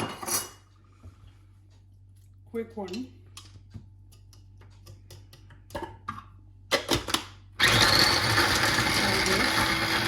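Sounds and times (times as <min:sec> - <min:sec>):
electric blender running: 0:07.6 - 0:10.0.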